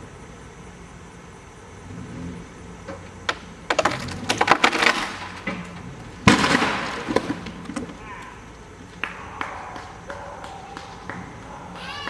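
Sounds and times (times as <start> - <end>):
truck engine running low: 0.0 - 12.0
heavy crash of falling tree: 2.8 - 11.2
tree trunk cracking and splintering: 3.7 - 8.4.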